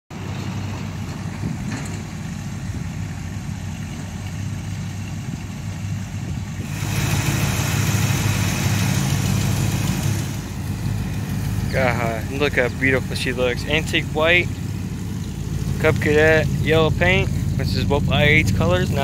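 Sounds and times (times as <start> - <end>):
truck engine idling: 0.1 - 19.0
hiss: 6.6 - 10.5.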